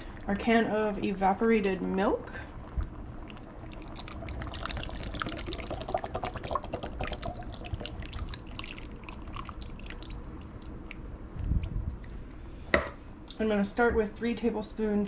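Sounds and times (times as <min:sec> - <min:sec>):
milk pouring into soup: 0:02.5 - 0:12.1
small splashes and drips: 0:02.5 - 0:12.1.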